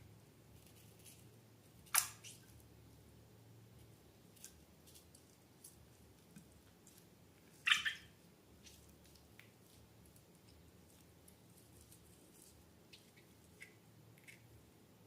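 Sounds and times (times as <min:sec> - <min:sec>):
wet slime squelch: 0:04.3 - 0:14.5.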